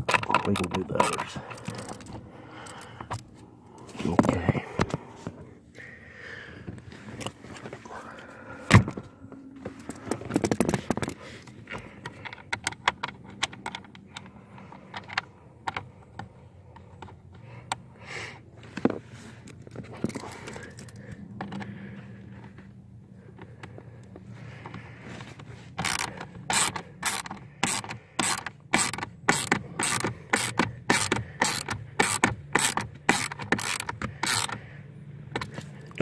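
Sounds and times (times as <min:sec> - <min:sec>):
hand ratchet clicking: 0:00.0 - 0:02.9, 0:25.8 - 0:34.6
knocks and rattles of tool: 0:00.0 - 0:03.2, 0:09.8 - 0:16.3, 0:24.6 - 0:34.6.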